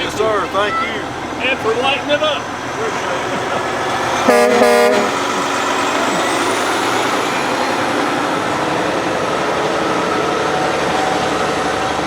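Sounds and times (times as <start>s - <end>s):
truck engine rumbling and hissing: 0.0s - 12.0s.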